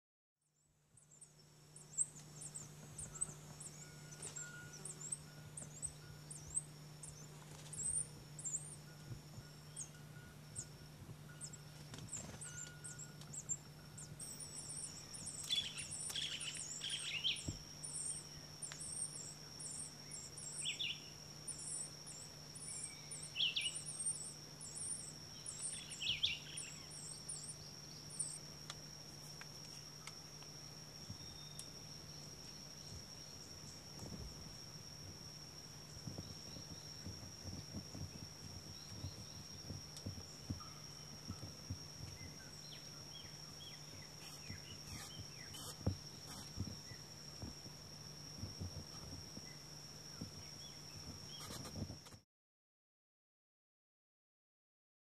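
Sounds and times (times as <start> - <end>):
low steady hum: 0.4 - 52.0
birds chirping: 1.0 - 28.5, 35.6 - 47.5
high insect buzz: 1.0 - 52.2.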